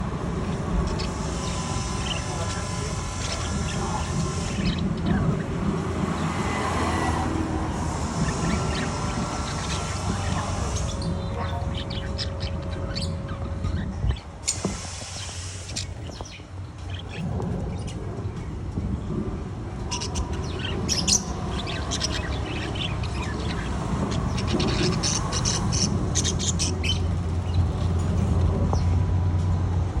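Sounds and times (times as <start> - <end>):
steady low hum: 0.0 - 30.0
parrot squawking and chirping: 0.4 - 5.5, 7.8 - 18.0, 19.8 - 27.7.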